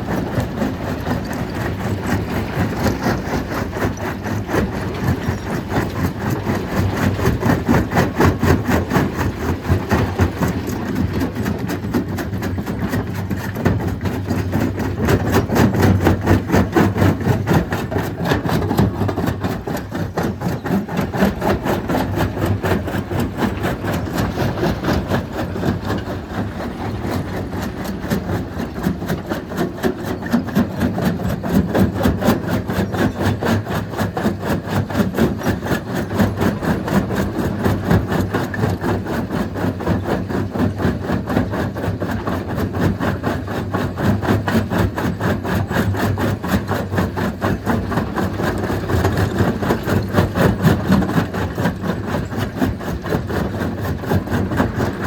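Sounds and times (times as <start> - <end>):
stone crushing machine pulsing din: 0.0 - 38.8.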